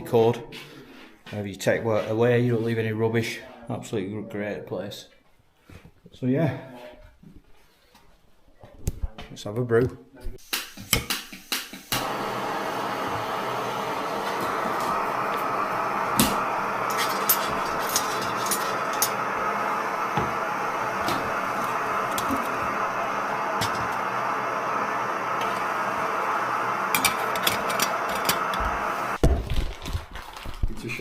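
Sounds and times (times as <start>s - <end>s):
camping stove hissing: 10.4s - 29.2s.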